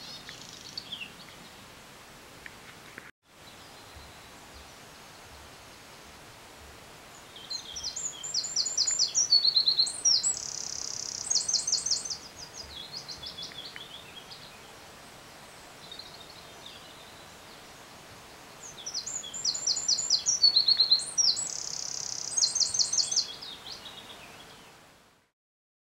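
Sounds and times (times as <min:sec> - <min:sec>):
songbird singing: 0:00.0 - 0:01.8, 0:03.3 - 0:06.0, 0:07.1 - 0:24.8
faint hiss: 0:00.0 - 0:25.3.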